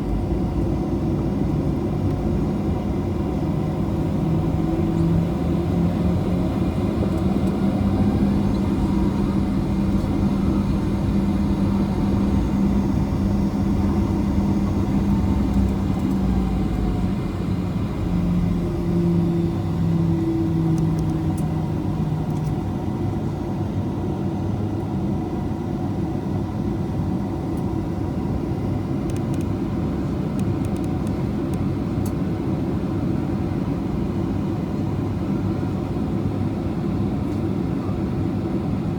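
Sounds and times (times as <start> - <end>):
low humming tones: 0.0 - 23.2
aircraft cabin engine rumble: 0.0 - 38.9.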